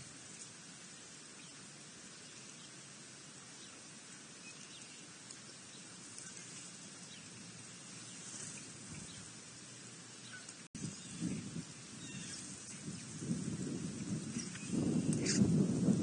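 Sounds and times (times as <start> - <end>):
steady hiss: 0.0 - 16.0
faint high bird calls: 10.2 - 11.3, 12.0 - 12.5.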